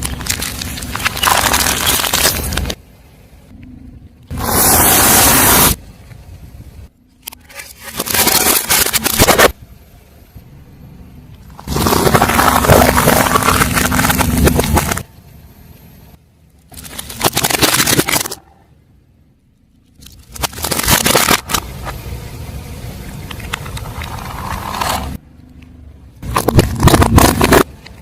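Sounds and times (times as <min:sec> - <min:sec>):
objects crushed under car tyre: 0:00.0 - 0:02.8, 0:07.6 - 0:09.6, 0:11.5 - 0:15.1, 0:16.7 - 0:18.5, 0:20.0 - 0:22.0, 0:26.2 - 0:28.0.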